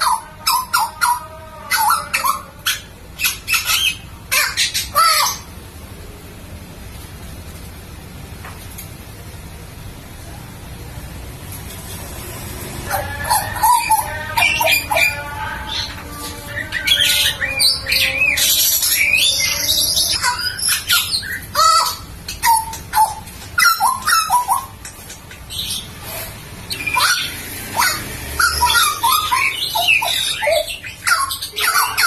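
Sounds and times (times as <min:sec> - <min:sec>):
harsh scratchy bird notes: 0:11.5 - 0:32.0.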